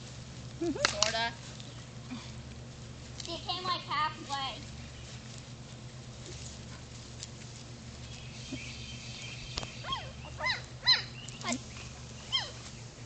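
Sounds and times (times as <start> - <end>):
puppies yelping: 7.9 - 13.0.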